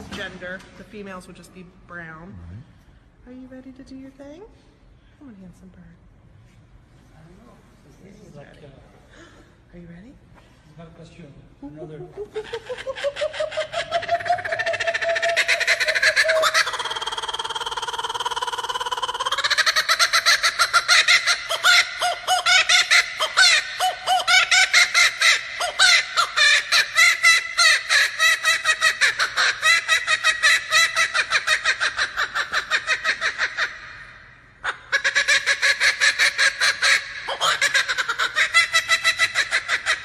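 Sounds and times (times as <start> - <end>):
kookaburra laughing call: 11.7 - 40.0.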